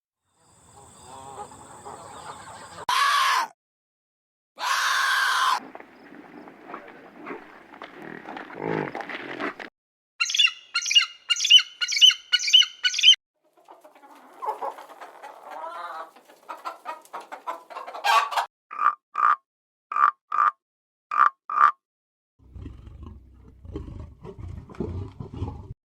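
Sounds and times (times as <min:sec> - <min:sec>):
bird and farm animal calls: 0:00.4 - 0:03.5, 0:04.6 - 0:05.6, 0:10.2 - 0:19.4
chicken clucking and squawking: 0:00.8 - 0:03.5, 0:10.4 - 0:18.5.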